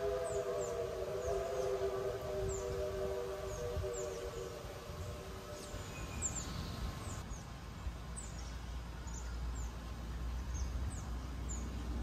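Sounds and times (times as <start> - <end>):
small birds chirping: 3.4 - 12.0.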